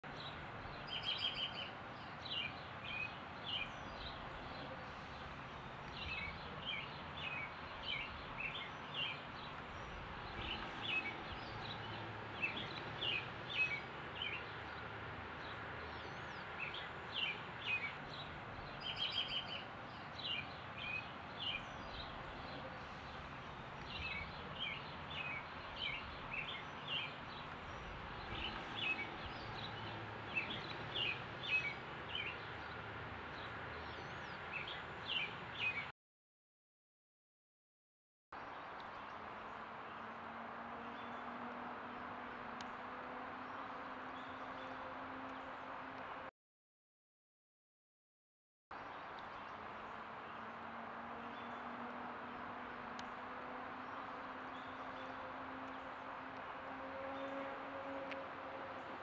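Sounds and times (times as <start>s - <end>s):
songbirds chirping: 0.0s - 35.9s, 38.4s - 46.3s, 48.7s - 59.0s
outdoor background hiss: 0.1s - 35.9s, 48.8s - 59.0s.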